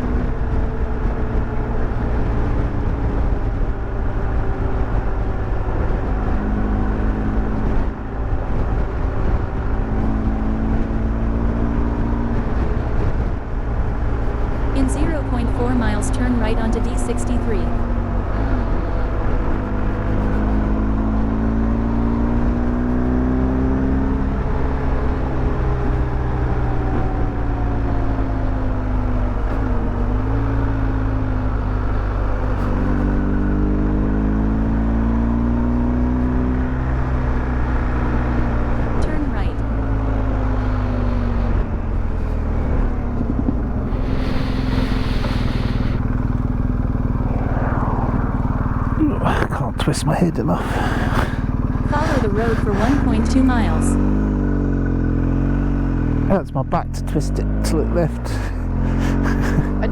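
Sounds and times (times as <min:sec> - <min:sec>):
motorcycle engine accelerating: 0:00.0 - 0:59.9
wind and road noise: 0:00.0 - 0:59.9
rushing noise: 0:39.6 - 0:54.0.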